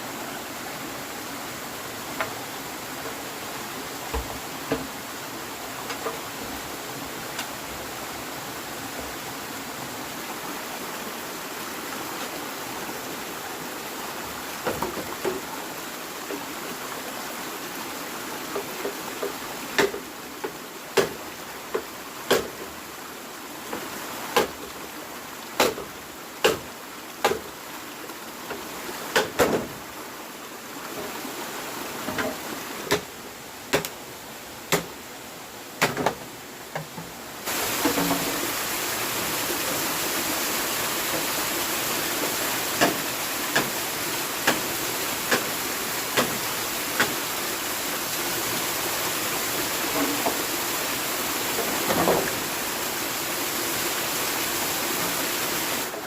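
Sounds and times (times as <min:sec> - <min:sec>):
sharp knocks or chops: 0:22.3 - 0:22.6, 0:25.6 - 0:25.8, 0:26.4 - 0:26.6.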